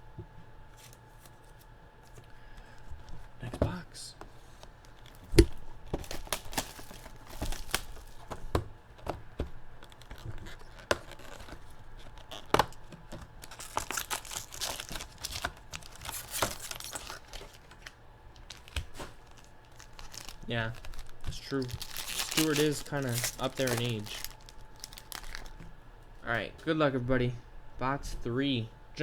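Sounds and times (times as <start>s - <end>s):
plastic and cardboard tearing: 4.4s - 25.7s.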